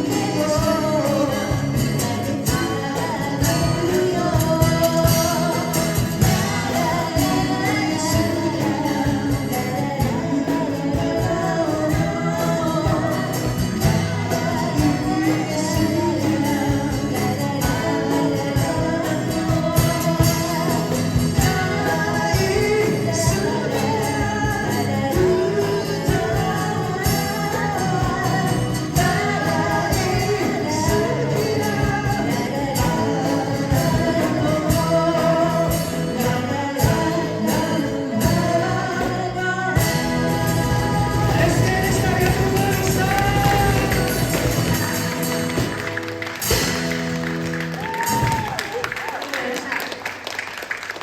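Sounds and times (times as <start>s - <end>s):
person singing: 0.0s - 47.1s
instrumental accompaniment: 0.0s - 48.7s.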